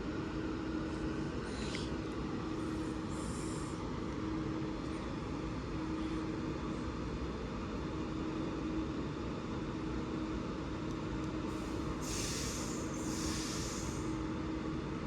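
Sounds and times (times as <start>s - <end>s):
air brakes hissing: 11.5s - 14.2s
electric train humming: 11.5s - 15.0s.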